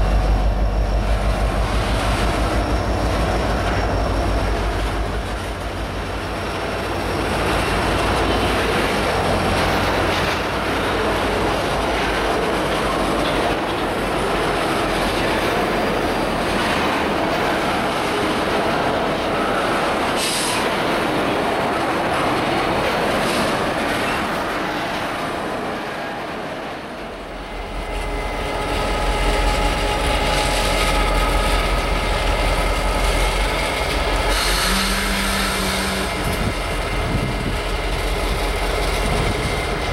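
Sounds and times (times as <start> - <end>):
diesel locomotive engine drone: 0.0 - 39.9
train wheels clattering: 1.0 - 18.3.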